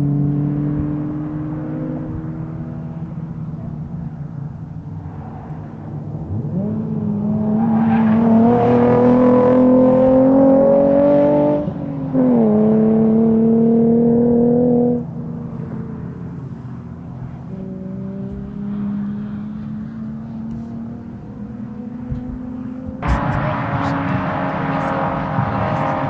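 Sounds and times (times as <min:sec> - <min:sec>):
car engine at full throttle: 0:00.0 - 0:26.0.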